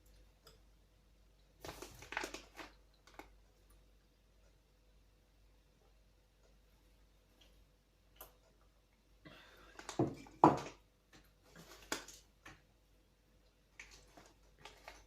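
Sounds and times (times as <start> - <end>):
rustling: 13.7 - 15.0.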